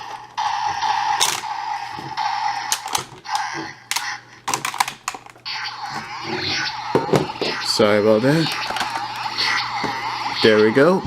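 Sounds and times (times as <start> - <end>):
hazy electronic toy sound: 0.0 - 11.0
plastic toy clicks and snaps: 1.2 - 1.5, 2.7 - 5.4.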